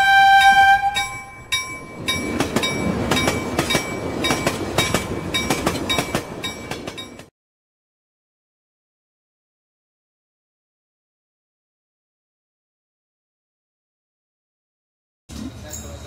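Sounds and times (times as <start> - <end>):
bell-like chime: 1.0 - 7.3
train wheels clattering over rail joints: 1.4 - 7.3.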